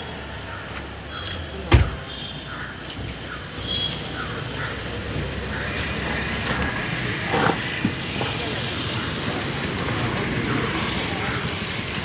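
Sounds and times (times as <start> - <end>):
street traffic rumble: 0.0 - 12.0
crows cawing: 0.3 - 1.5, 2.4 - 6.8, 8.8 - 9.5.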